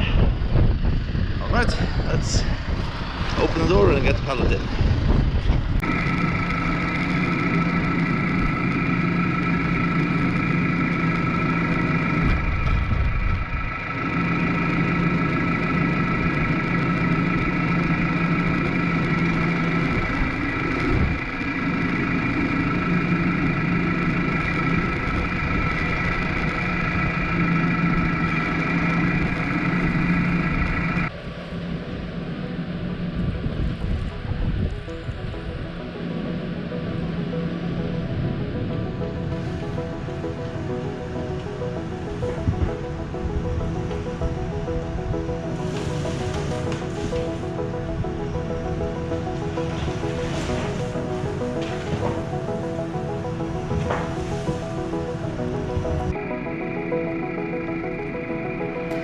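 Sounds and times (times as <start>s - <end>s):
constant whine: 0.0s - 59.0s
tractor diesel engine running: 0.0s - 59.0s.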